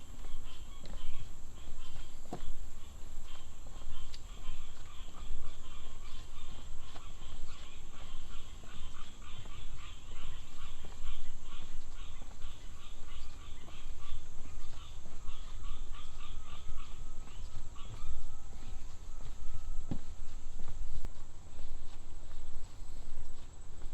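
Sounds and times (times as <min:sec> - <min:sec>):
small animals calling in pulses: 0:00.0 - 0:21.7
thin steady whistle: 0:17.8 - 0:20.1.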